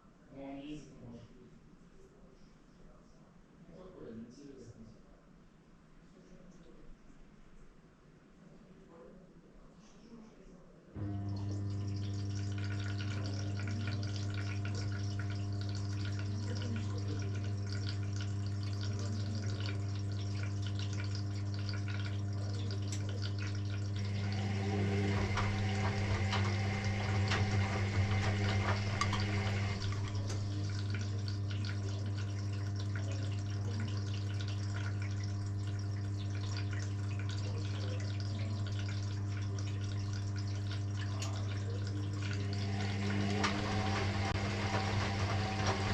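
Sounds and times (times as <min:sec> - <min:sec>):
washing machine electrical hum: 0:09.5 - 0:45.9
water rushing and swishing: 0:24.0 - 0:31.1, 0:42.1 - 0:45.9.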